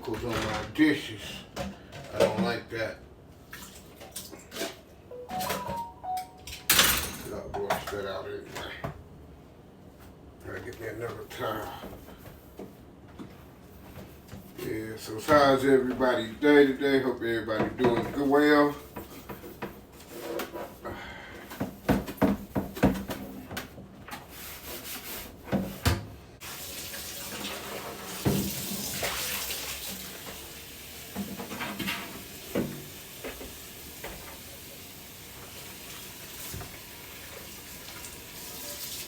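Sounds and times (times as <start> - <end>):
clatter of dishes at a sink: 1.5 - 2.7, 6.8 - 8.8, 17.6 - 18.3, 21.5 - 24.3, 27.4 - 29.4, 31.1 - 34.3
faucet running into sink: 26.4 - 39.0.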